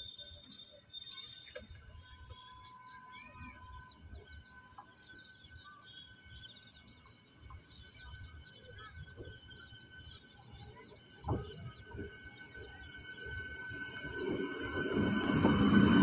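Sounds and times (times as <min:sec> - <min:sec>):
small birds chirping: 0:00.0 - 0:13.8.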